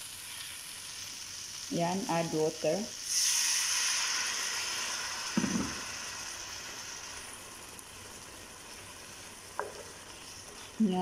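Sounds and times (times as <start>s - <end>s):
food sizzling in a frying pan: 0.0s - 11.0s
low knock: 5.4s - 5.8s.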